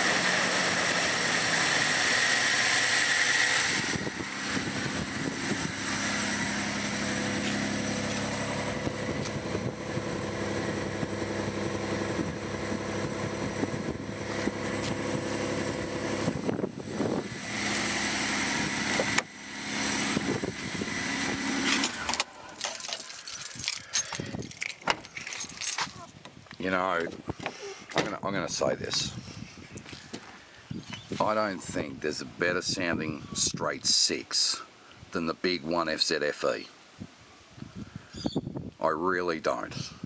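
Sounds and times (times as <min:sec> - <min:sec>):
car engine idling: 0:00.0 - 0:25.4.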